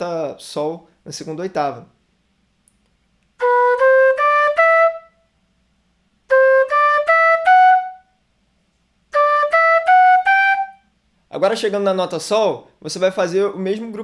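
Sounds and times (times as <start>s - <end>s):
notched flute playing scales: 3.4s - 5.3s, 6.3s - 8.2s, 9.1s - 10.9s.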